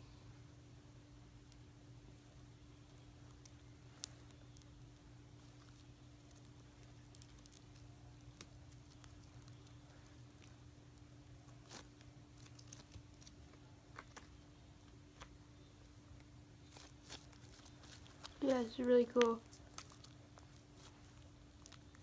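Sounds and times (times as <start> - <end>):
faint steady hum: 0.0 - 22.0
slime clicks and squishes: 3.0 - 11.0, 16.6 - 22.0.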